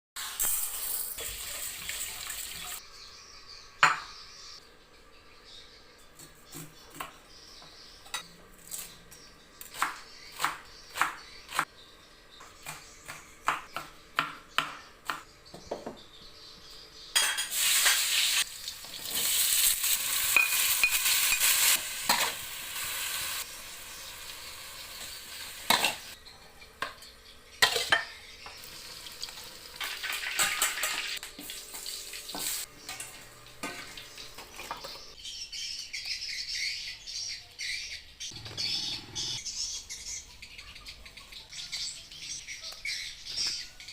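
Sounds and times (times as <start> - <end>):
loud frying sizzle: 0.2 - 2.8, 17.2 - 26.2, 27.6 - 35.2.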